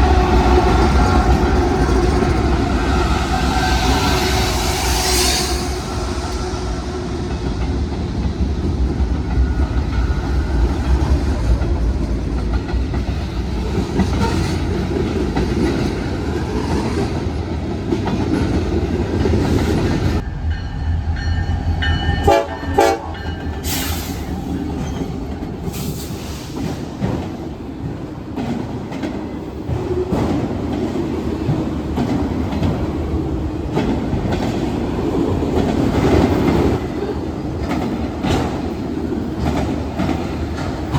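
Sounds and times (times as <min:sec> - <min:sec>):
train horn: 0:00.0 - 0:07.5, 0:22.1 - 0:24.1.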